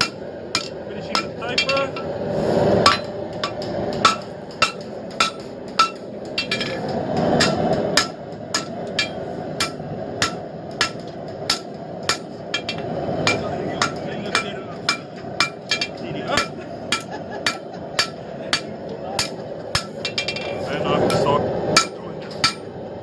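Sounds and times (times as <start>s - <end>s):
hammer striking metal on anvil: 0.0s - 2.1s, 2.8s - 22.7s
steady rushing noise: 0.0s - 23.0s.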